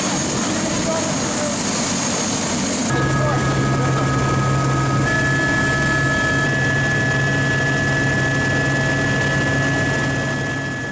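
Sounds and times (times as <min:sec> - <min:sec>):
helicopter engine and rotor drone: 0:00.0 - 0:10.9
high whine: 0:02.7 - 0:10.9.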